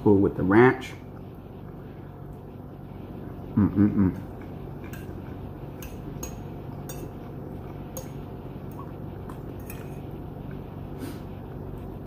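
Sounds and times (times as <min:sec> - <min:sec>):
low background hum: 0:00.0 - 0:12.0
cutlery and dishes clinking: 0:05.8 - 0:07.3, 0:09.5 - 0:10.0.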